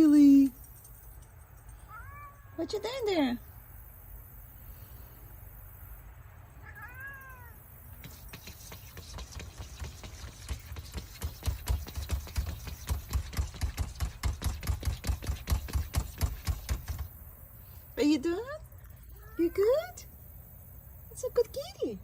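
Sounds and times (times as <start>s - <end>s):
cat meowing: 1.9s - 2.9s, 6.6s - 7.6s
fast soft clicks and thumps: 7.9s - 17.2s.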